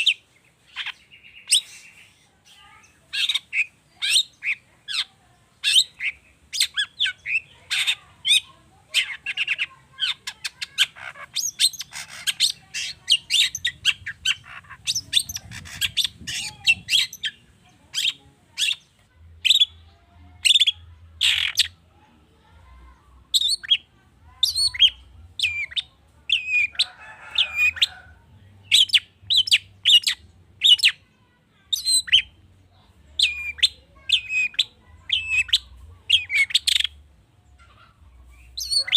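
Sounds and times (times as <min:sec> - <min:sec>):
harsh bird rasp: 0:05.6 - 0:17.4, 0:33.2 - 0:36.9
shrike singing chirps and whistles: 0:23.3 - 0:23.8, 0:24.4 - 0:26.7, 0:28.6 - 0:31.0, 0:31.7 - 0:32.3, 0:33.2 - 0:37.0.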